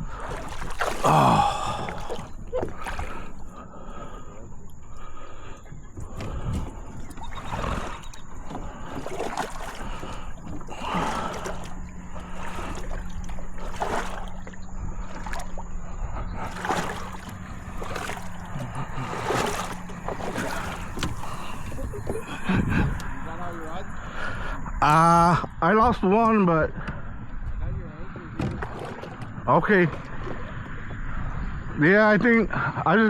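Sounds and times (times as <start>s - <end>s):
water splashing and sloshing: 0.0s - 25.5s, 28.2s - 31.5s
steady low hum: 0.0s - 25.8s.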